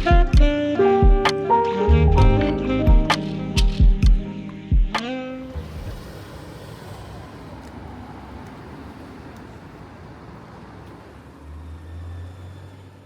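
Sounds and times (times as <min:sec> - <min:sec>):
passing vehicles: 0:05.4 - 0:13.0.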